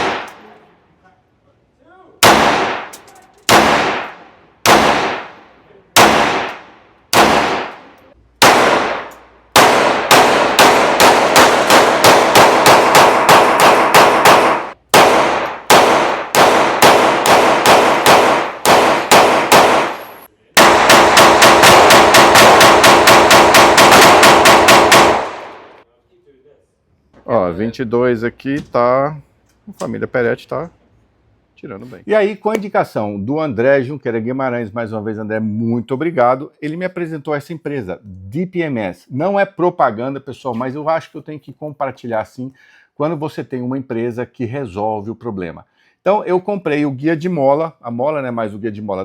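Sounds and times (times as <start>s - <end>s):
pistol shots: 0.0s - 0.6s, 2.2s - 25.8s.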